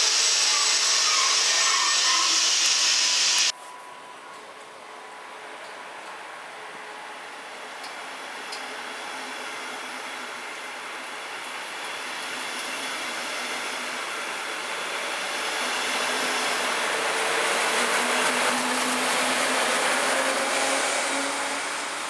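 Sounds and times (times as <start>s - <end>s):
train wheels rumbling on rail: 7.0s - 22.0s.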